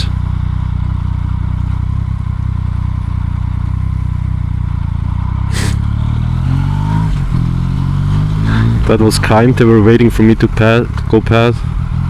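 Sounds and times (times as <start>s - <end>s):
motorcycle engine running: 0.0s - 12.0s
brief hiss: 5.5s - 5.8s.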